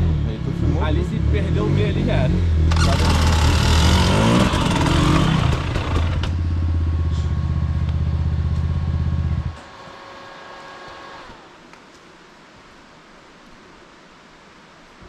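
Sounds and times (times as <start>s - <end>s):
motorcycle engine revving: 0.0s - 11.4s
rattling clatter: 2.7s - 6.4s.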